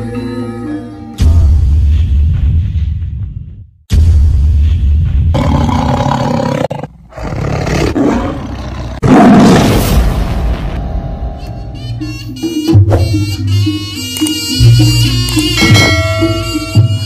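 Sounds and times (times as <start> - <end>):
big cat roaring: 5.4 - 9.7.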